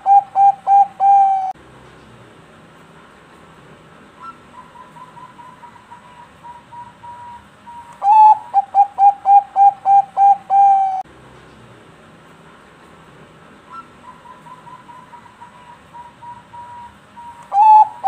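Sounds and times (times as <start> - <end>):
dove cooing: 0.0 - 1.6, 4.2 - 11.0, 13.7 - 18.0.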